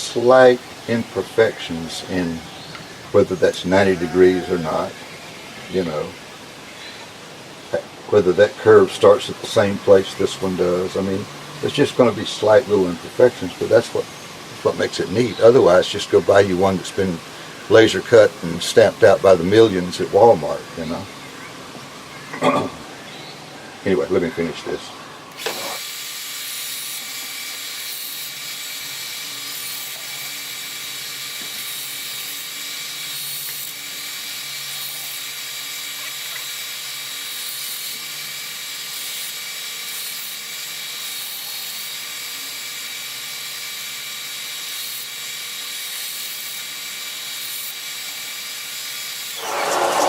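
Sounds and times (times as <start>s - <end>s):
power tool routing wood: 49.1s - 50.0s.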